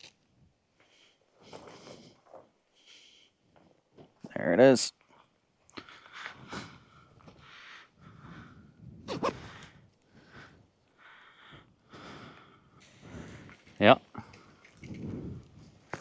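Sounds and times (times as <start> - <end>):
person breathing heavily: 5.8 - 14.6
person gasping: 7.6 - 12.5.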